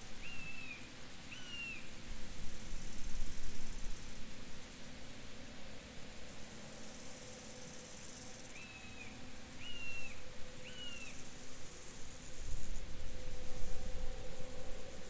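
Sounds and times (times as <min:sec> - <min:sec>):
open-field background hiss: 0:00.0 - 0:15.0
bird whistled calls: 0:00.2 - 0:01.8, 0:08.6 - 0:11.1.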